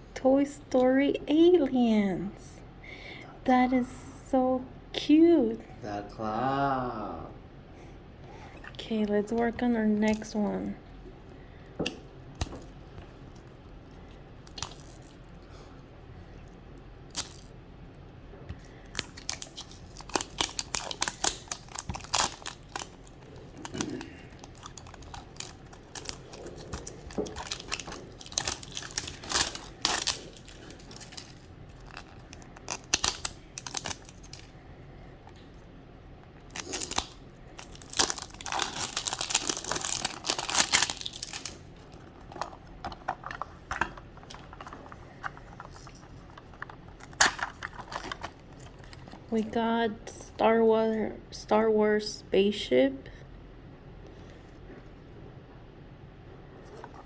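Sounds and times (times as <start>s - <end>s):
plastic wrapping crinkling and tearing: 14.4s - 15.4s, 17.1s - 17.5s, 18.6s - 34.6s, 36.4s - 49.5s.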